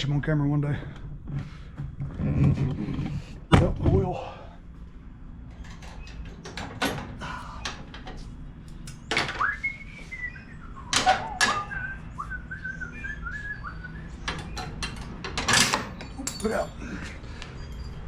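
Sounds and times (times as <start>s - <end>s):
person whistling: 9.4s - 14.2s
tools clicking and knocking: 14.2s - 16.7s.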